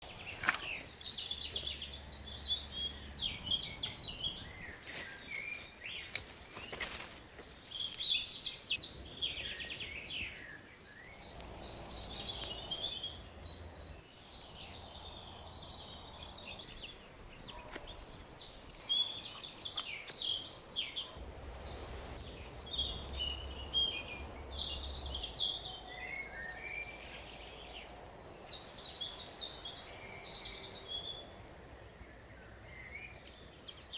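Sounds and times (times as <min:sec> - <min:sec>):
songbirds singing: 0:00.0 - 0:33.9
campfire pops: 0:03.8 - 0:15.1, 0:19.7 - 0:25.2.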